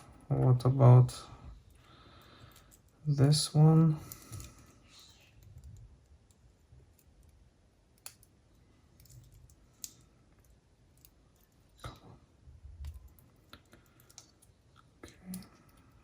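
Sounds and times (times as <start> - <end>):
faint sharp clicks of handled parts: 1.6 - 3.0, 4.0 - 12.1, 12.8 - 16.0.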